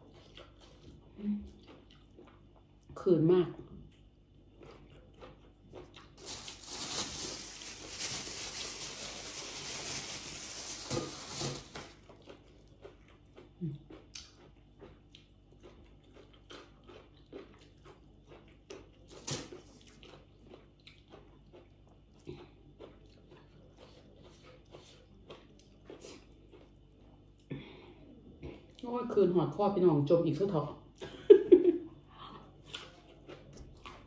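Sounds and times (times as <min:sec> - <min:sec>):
crunching while eating: 0:00.0 - 0:02.9, 0:03.6 - 0:27.8, 0:32.4 - 0:34.0
soft chewing: 0:00.0 - 0:06.6, 0:11.8 - 0:29.0, 0:30.9 - 0:34.0.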